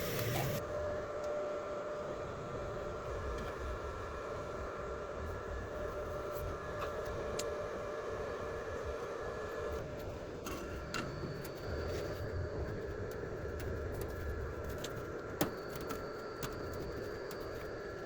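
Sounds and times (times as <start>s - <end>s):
machine hum: 0.0s - 7.2s.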